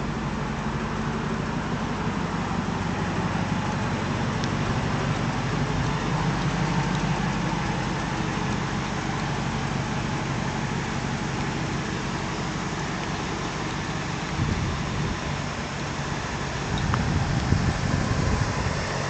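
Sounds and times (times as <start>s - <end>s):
pickup engine idling: 0.0s - 19.0s.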